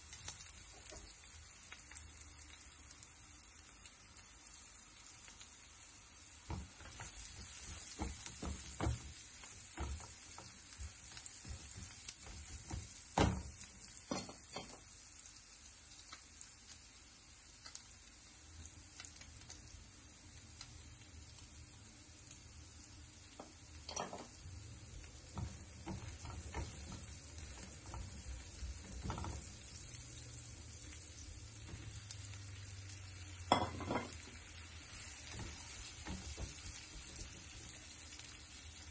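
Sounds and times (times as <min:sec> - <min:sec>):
food sizzling in hot oil: 0:00.0 - 0:38.9
spoon knocking against pan: 0:06.5 - 0:14.9, 0:23.4 - 0:24.4, 0:25.3 - 0:29.6, 0:33.5 - 0:34.2.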